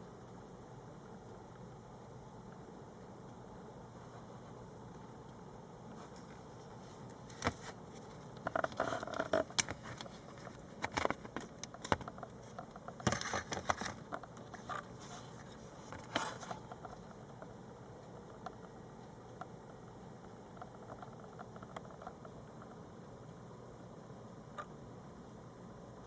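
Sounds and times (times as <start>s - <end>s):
handling clicks and rustles: 5.9s - 17.6s.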